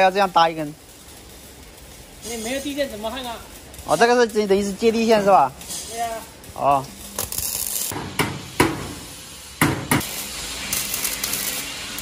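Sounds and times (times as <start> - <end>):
steady hiss: 0.0 - 12.0
hammer knocking on metal: 8.0 - 9.0, 9.6 - 10.0.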